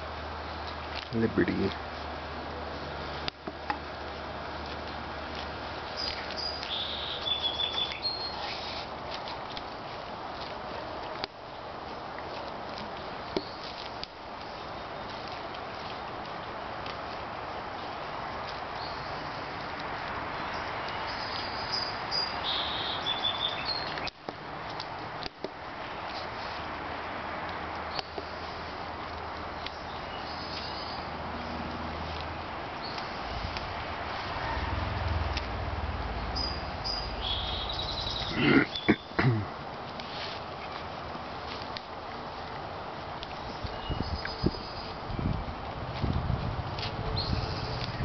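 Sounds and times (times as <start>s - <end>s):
outdoor background noise: 0.0s - 48.0s
small bird chirping: 5.9s - 8.8s, 20.5s - 24.1s, 36.3s - 39.2s.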